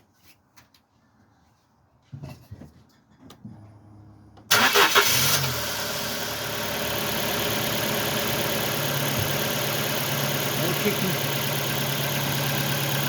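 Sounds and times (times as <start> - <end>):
car engine starting and idling: 3.6 - 13.0.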